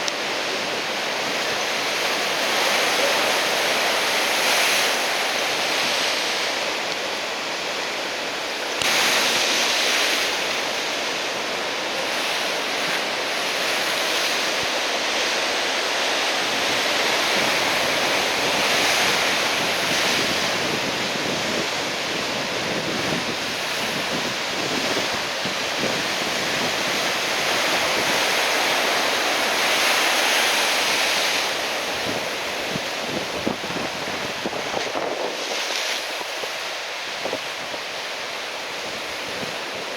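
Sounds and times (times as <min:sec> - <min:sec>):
surf breaking on shore: 0:00.0 - 0:39.9
wind buffeting microphone: 0:17.2 - 0:28.4, 0:31.9 - 0:37.8.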